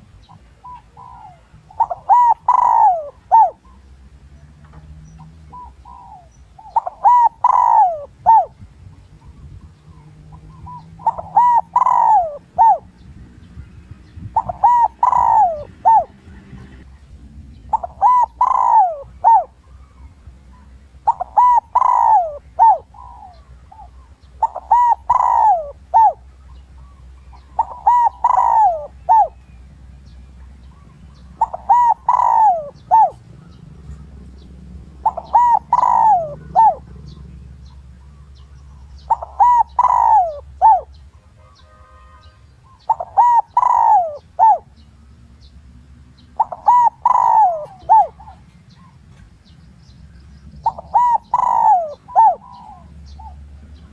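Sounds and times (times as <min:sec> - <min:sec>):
dove cooing: 0:00.0 - 0:16.9, 0:17.5 - 0:53.9.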